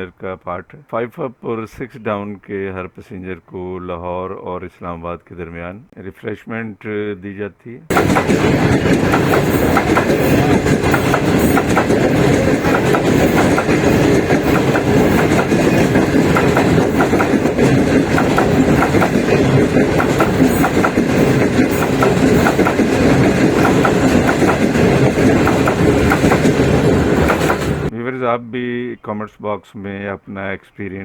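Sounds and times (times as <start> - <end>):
passenger train running: 7.9 - 27.9
wheels clicking on rails: 7.9 - 27.9.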